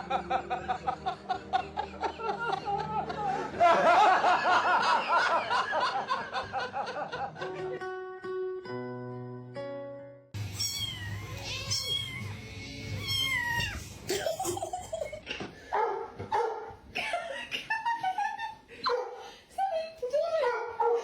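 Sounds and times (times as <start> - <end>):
plucked guitar music: 7.3 - 13.1
cat meowing: 10.4 - 14.1.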